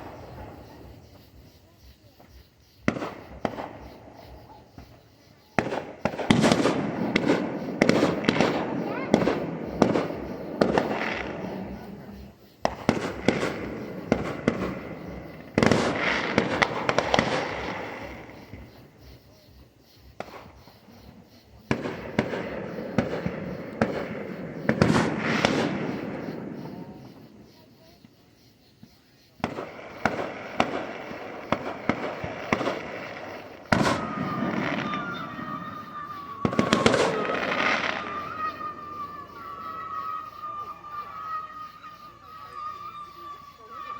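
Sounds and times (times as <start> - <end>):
fireworks popping and crackling: 0.0 - 43.9.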